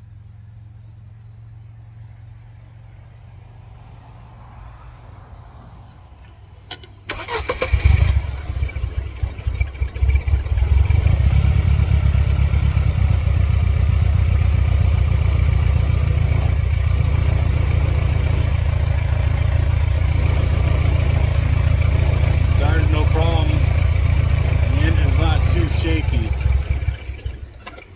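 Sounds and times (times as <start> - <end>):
car engine cranking and idling: 6.1 - 27.9.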